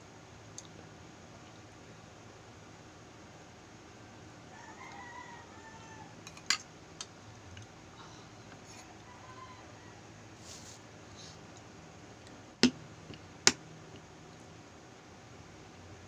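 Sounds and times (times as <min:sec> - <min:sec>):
faint rooster crowing: 0:04.4 - 0:06.5, 0:08.0 - 0:11.4.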